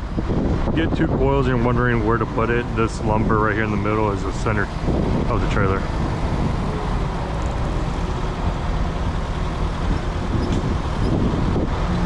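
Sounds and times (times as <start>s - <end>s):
vehicle engine running: 0.0s - 12.0s
wind buffeting microphone: 0.0s - 12.0s.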